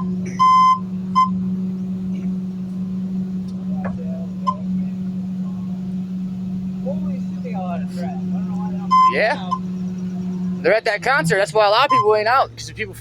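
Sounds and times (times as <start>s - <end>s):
garbage truck engine drone: 0.0s - 13.0s
short high warning beep: 11.8s - 12.2s.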